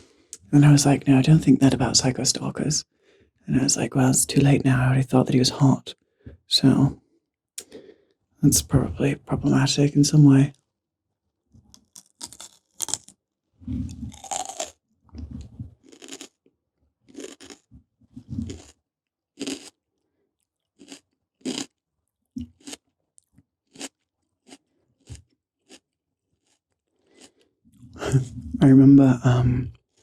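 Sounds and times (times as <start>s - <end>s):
crunching raw pepper: 11.7s - 13.2s, 13.9s - 14.8s, 15.8s - 16.4s, 17.1s - 17.7s, 18.4s - 18.8s, 19.4s - 19.8s, 20.4s - 21.8s, 22.4s - 27.5s.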